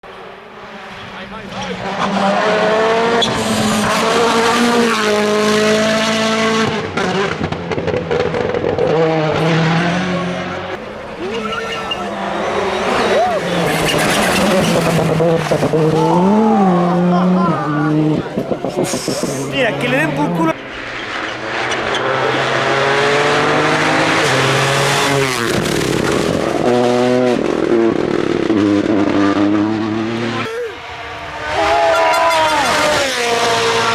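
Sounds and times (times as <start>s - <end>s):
rally car engine at high revs: 0.0s - 33.9s.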